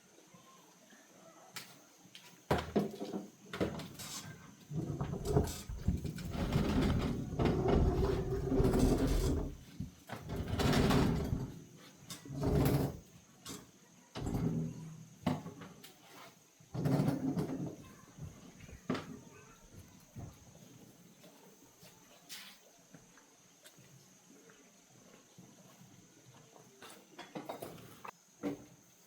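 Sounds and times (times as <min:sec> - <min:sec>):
scraping or sliding sounds: 0:04.0 - 0:09.6.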